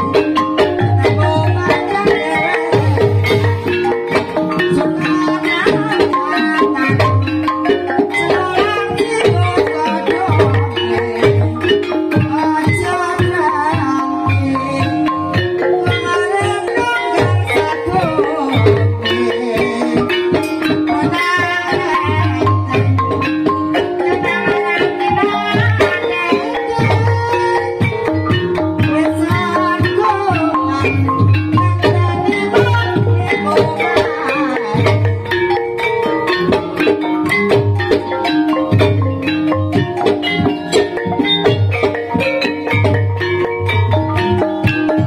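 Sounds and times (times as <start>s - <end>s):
hand drum beats: 0.0s - 45.0s
mallet-struck keyed instruments: 0.0s - 45.0s.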